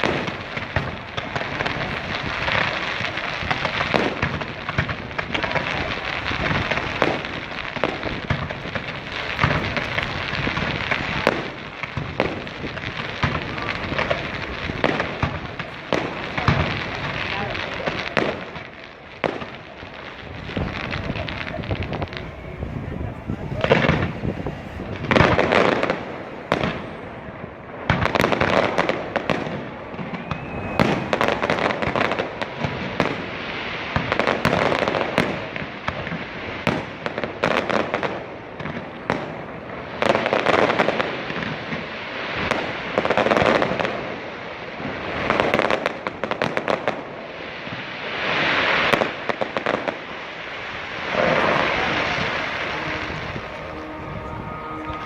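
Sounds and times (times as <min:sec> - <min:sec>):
fireworks bursting with crackling: 0:00.0 - 0:55.0.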